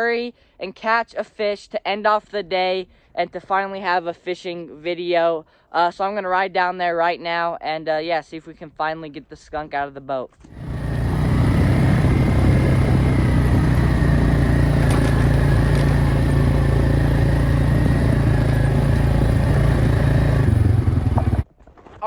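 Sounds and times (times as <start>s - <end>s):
atv engine running: 10.5s - 21.5s.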